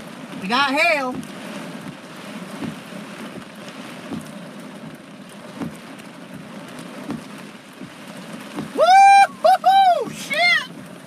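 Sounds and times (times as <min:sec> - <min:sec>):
rain and hail on car roof: 0:00.0 - 0:11.0
wind: 0:00.0 - 0:11.0
soft low thumps: 0:01.0 - 0:08.8.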